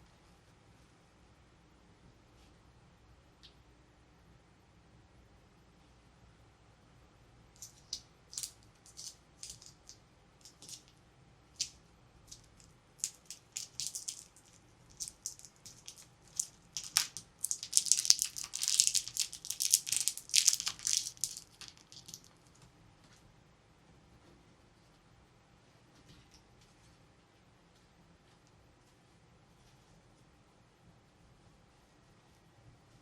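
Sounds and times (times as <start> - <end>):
plastic packaging crinkling: 8.4 - 10.9, 12.3 - 22.4.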